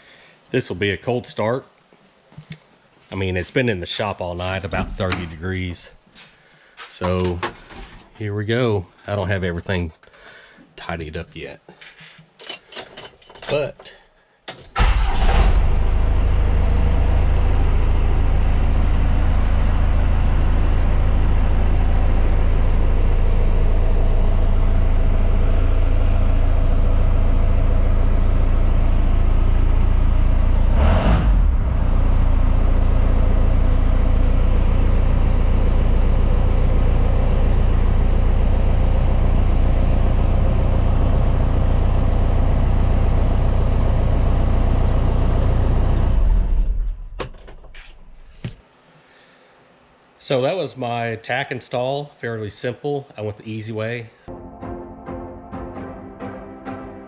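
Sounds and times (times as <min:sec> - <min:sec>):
diesel engine idling: 0:14.8 - 0:47.0.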